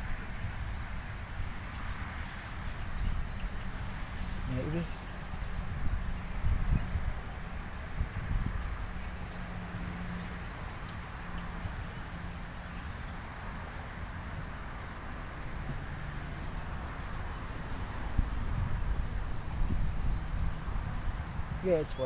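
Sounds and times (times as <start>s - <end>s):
bird chirping: 0.0s - 15.2s
insect hiss: 0.0s - 22.0s.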